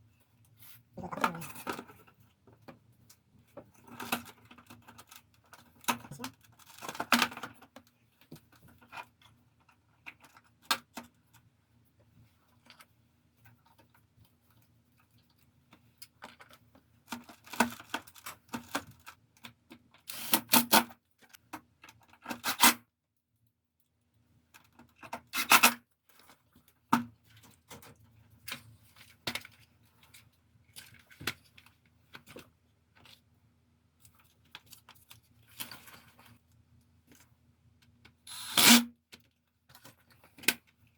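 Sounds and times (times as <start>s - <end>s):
plastic parts clicking and rattling: 3.8s - 7.8s.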